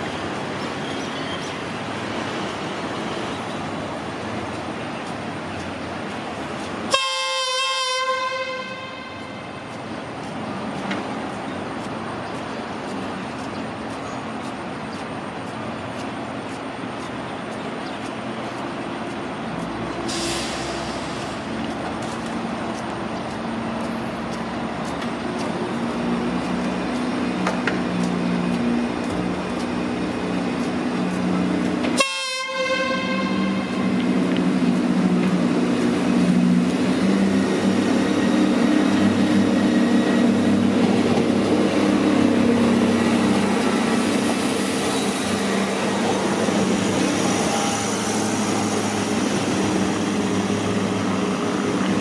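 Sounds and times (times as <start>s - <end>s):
steady train noise: 0.0s - 52.0s
train horn blowing: 6.9s - 9.7s, 31.9s - 34.0s
short hiss: 20.1s - 21.5s.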